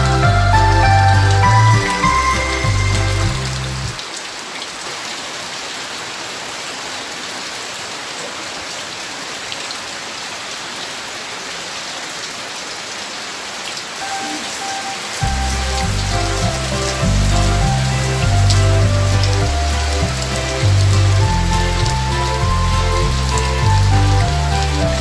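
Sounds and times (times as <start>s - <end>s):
song music: 0.0s - 4.0s, 14.0s - 25.0s
steady rain falling: 0.0s - 25.0s.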